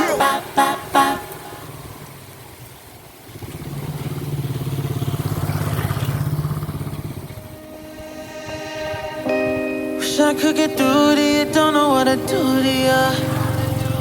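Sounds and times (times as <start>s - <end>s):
vehicle engine passing: 0.1s - 7.7s, 13.1s - 14.0s.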